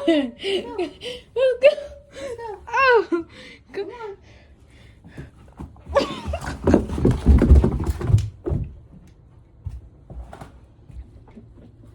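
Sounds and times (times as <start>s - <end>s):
dog paws scrambling on stairs: 5.0s - 11.9s.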